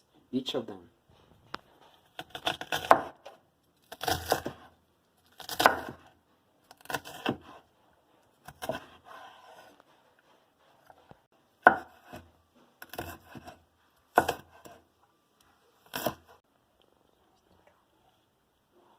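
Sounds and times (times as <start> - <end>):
knife chopping on cutting board: 1.8 - 3.4, 5.4 - 6.1, 6.8 - 7.6, 8.4 - 9.8, 11.6 - 14.8.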